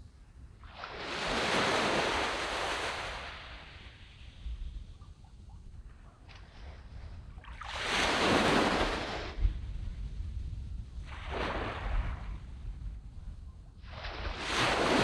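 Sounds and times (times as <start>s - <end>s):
small waves breaking on beach: 0.6s - 4.4s, 6.3s - 9.6s, 11.0s - 12.4s, 13.8s - 15.0s.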